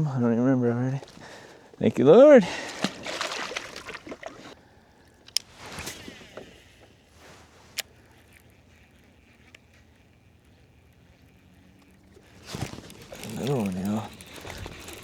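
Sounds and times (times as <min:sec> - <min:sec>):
water sloshing: 0:01.0 - 0:08.9, 0:11.0 - 0:15.0
handling noises on boat: 0:01.0 - 0:15.0.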